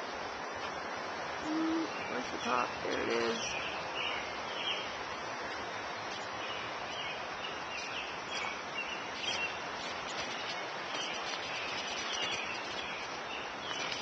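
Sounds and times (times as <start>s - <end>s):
outdoor background noise: 0.0s - 14.0s
birds chirping: 1.4s - 14.0s.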